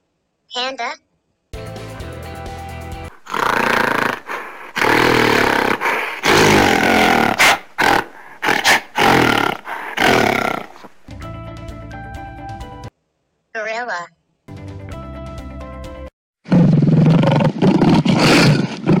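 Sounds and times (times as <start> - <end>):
music: 1.6 - 3.1, 11.1 - 12.9, 14.5 - 16.1
animal crying loudly: 3.2 - 10.9.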